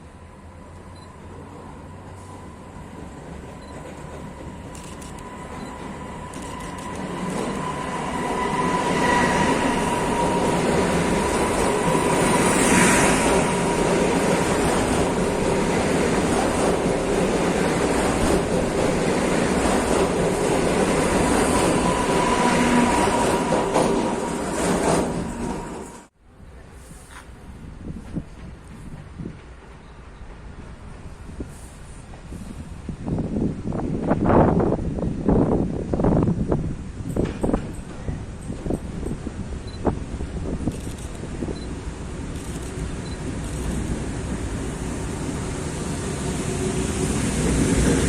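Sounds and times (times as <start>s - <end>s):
train wheels clattering on rails: 2.9s - 26.0s, 37.0s - 39.3s.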